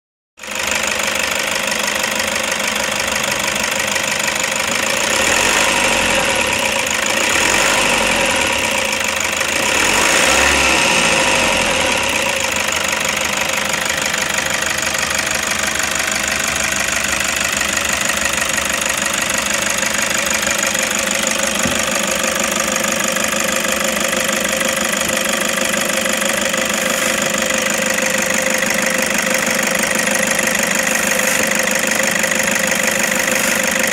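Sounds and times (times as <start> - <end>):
diesel engine idling: 0.4 - 33.9.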